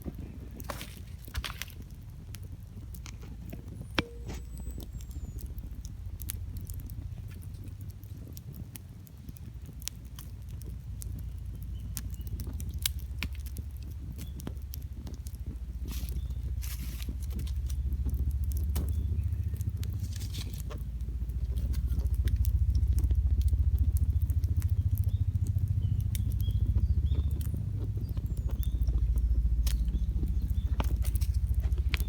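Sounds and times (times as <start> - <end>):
campfire crackling and popping: 0.0 - 32.0
low rumble: 0.0 - 32.0.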